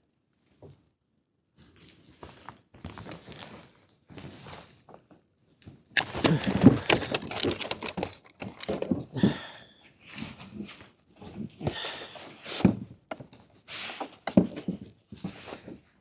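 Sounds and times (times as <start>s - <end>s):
handling rustling: 6.0s - 9.1s.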